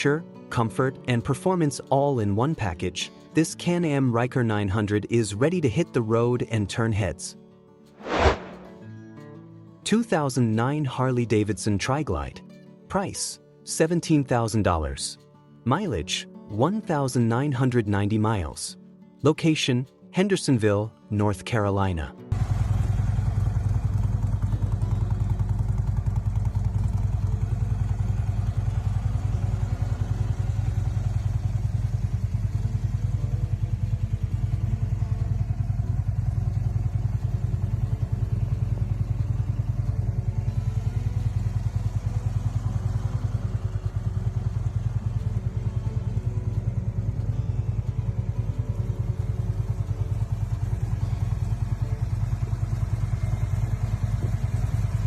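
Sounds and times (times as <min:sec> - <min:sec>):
motorcycle engine running steadily: 0:22.3 - 0:55.0.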